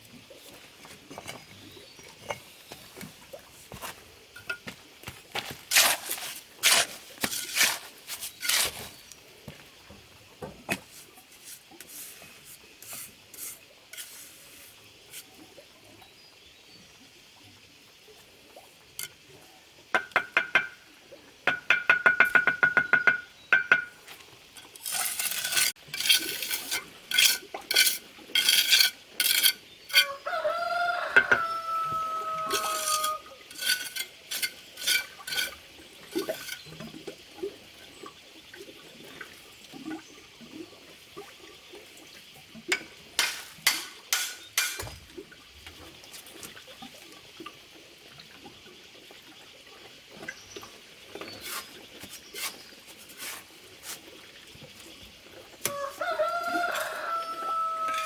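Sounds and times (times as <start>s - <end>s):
trowel scraping mortar: 5.4s - 9.1s, 11.4s - 15.3s, 24.6s - 30.2s, 31.9s - 36.7s, 51.2s - 54.0s
trowel clinking against bricks: 24.6s - 30.1s, 32.4s - 36.7s, 42.7s - 44.9s.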